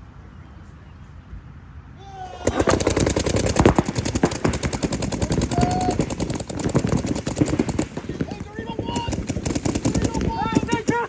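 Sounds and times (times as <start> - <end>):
paintball markers firing: 2.4 - 11.0.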